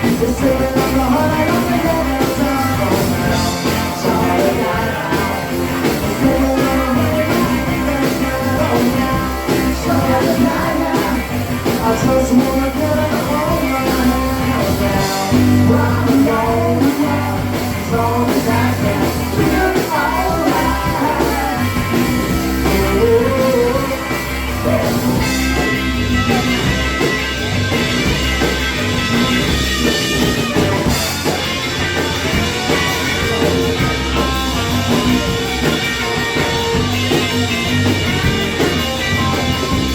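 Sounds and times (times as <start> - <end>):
electric guitar: 0.0 - 39.9
rock and roll band playing: 0.0 - 39.9.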